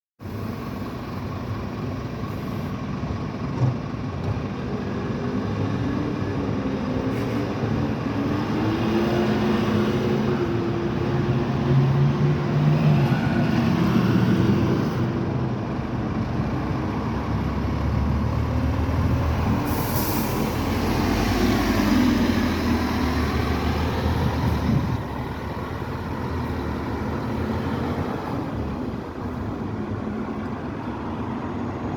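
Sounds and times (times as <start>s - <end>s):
bus diesel engine accelerating: 0.2s - 31.9s
air hiss: 19.7s - 20.6s.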